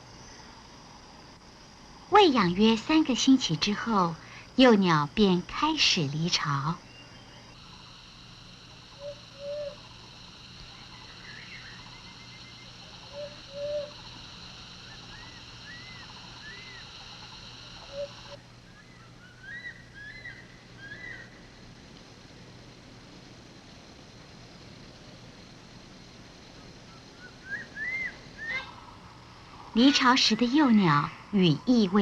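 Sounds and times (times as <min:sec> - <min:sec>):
high insect drone: 0:00.0 - 0:32.0
birds chirping: 0:06.1 - 0:21.3.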